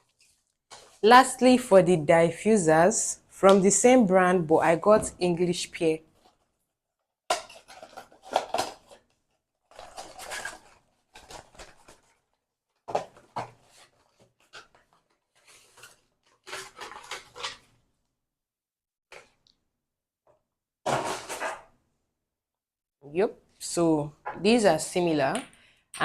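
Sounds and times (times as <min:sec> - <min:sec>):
packaging rustling: 0:07.4 - 0:17.7.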